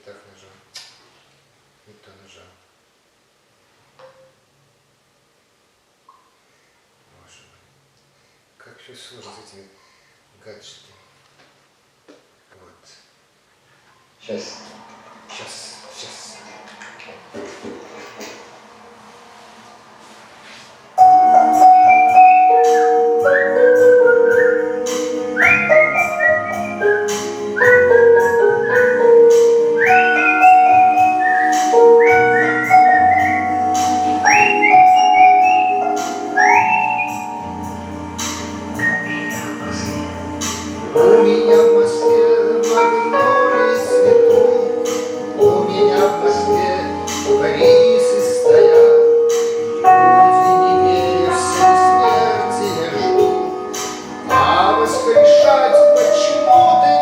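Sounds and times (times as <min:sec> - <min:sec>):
person whistling a melody: 0:21.0 - 0:37.6, 0:38.8 - 0:40.0
person singing long held notes: 0:21.0 - 0:53.4
instrumental backing track: 0:21.0 - 0:57.0.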